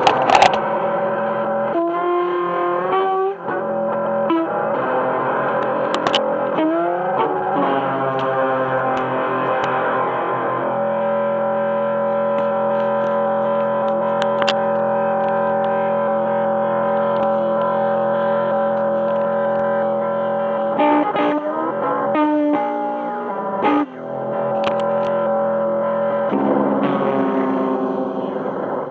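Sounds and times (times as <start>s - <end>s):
distorted electric guitar chords: 0.0s - 28.9s.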